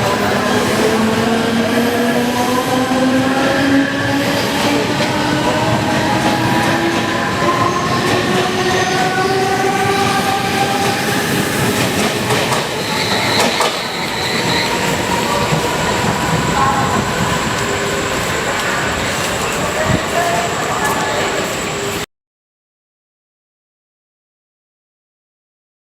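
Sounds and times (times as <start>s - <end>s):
train carriage rattle and rumble: 0.0s - 22.0s
high squeal: 12.5s - 22.0s.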